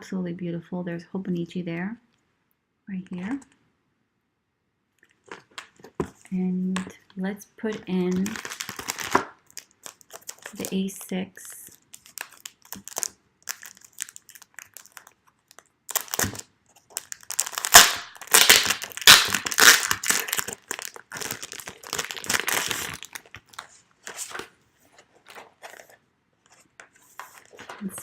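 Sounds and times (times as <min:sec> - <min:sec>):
packaging crinkling: 0:05.0 - 0:07.1, 0:07.7 - 0:28.0.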